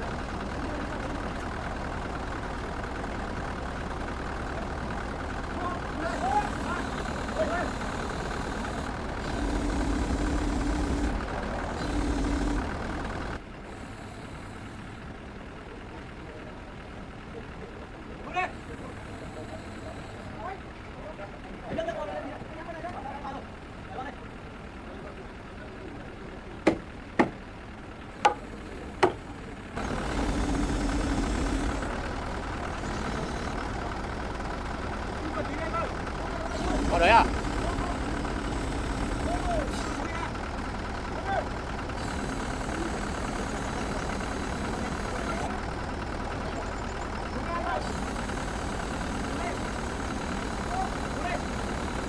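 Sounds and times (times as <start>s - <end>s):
engine running steadily: 0.0s - 52.0s
held droning tone: 5.6s - 13.4s, 35.7s - 40.4s, 41.2s - 45.6s
sharp knocks: 26.7s - 27.4s, 28.3s - 29.3s.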